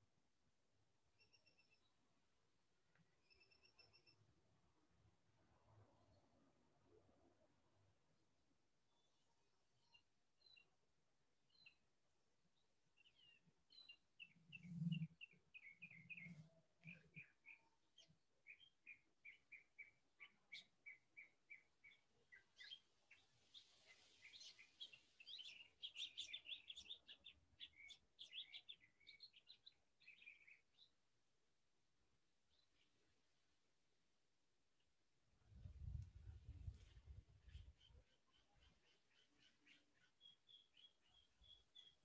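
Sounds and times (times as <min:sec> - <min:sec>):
small bird chirping: 0:13.0 - 0:30.9, 0:36.7 - 0:42.0.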